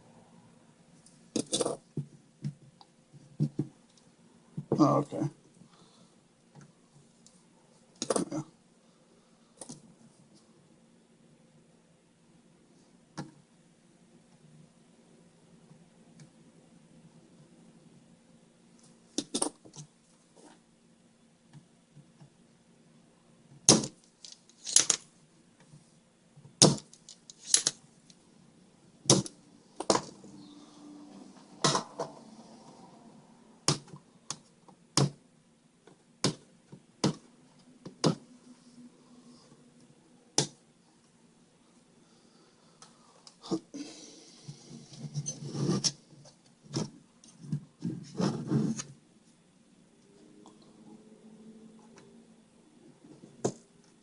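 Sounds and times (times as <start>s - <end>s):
rubbing and scraping of tools: 44.3s - 46.4s.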